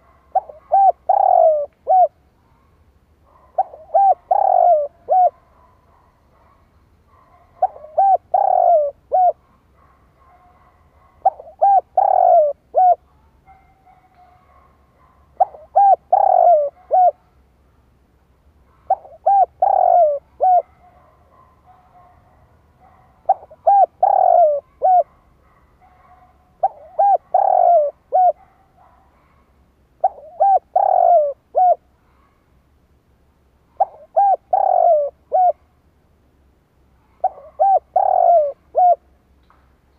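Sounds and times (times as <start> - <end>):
dove cooing: 0.0 - 2.2, 3.3 - 6.5, 7.3 - 9.5, 10.3 - 13.1, 15.3 - 17.3, 18.7 - 25.2, 25.9 - 29.4, 30.0 - 32.3, 33.7 - 35.6, 37.1 - 39.0.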